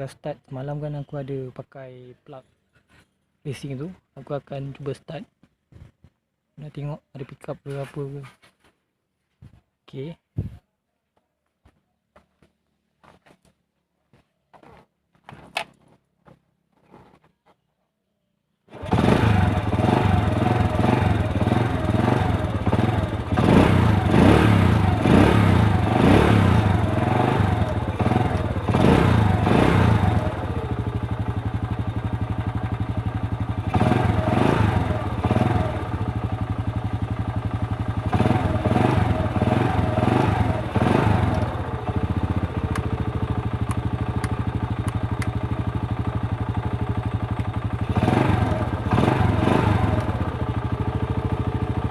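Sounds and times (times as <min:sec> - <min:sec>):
motorcycle engine revving and idling: 0:18.7 - 0:51.9.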